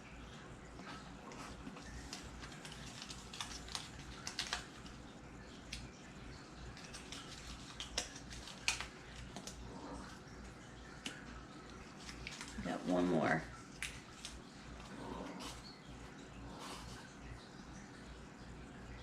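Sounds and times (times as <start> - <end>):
low steady hum: 0.0 - 19.0
small decorations clicking: 6.7 - 9.8.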